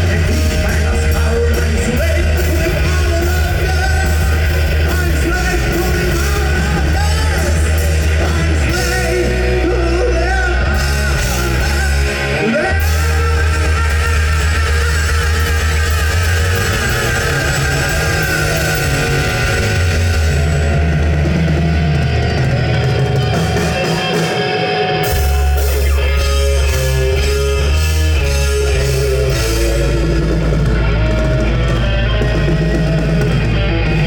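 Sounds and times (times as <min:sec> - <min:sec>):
person singing: 0:00.0 - 0:20.7
heavy rock band playing: 0:00.0 - 0:34.0.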